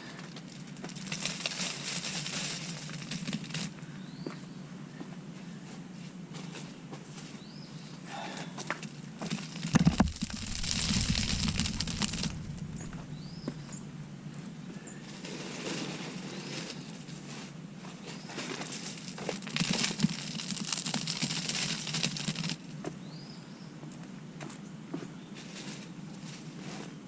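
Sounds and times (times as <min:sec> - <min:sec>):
mulch rustling and crunching: 0:00.4 - 0:03.8, 0:08.8 - 0:13.9, 0:18.4 - 0:22.6
bird chirps: 0:10.3 - 0:14.0.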